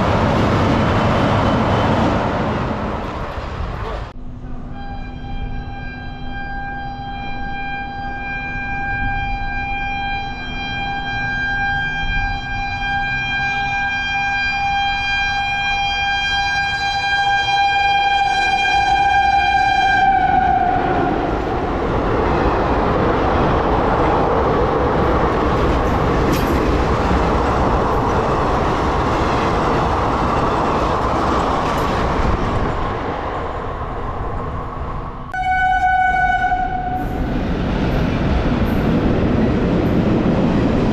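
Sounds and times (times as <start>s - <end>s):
train passing rumble: 0.0s - 40.9s
train horn long steady note: 4.2s - 21.4s, 35.3s - 37.2s.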